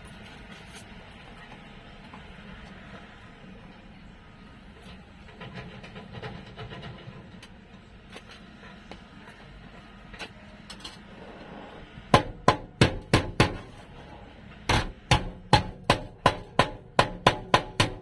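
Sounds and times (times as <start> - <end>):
hammer striking steel panel: 12.1 - 18.0.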